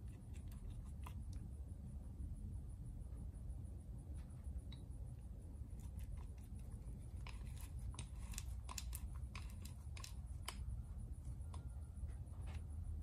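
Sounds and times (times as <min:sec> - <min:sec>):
steady low hum: 0:00.0 - 0:13.0
small metal parts clicking: 0:05.8 - 0:10.7.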